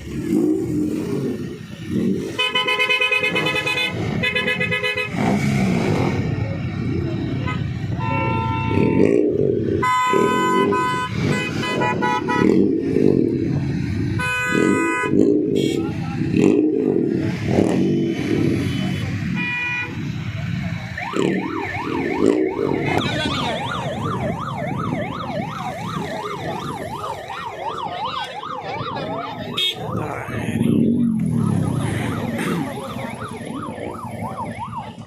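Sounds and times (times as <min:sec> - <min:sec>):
engines running: 0:00.0 - 0:35.0
car horns honking: 0:02.2 - 0:05.7, 0:07.4 - 0:12.7, 0:14.2 - 0:16.0, 0:18.2 - 0:20.2, 0:29.5 - 0:30.0
electronic siren warbling: 0:20.3 - 0:35.0.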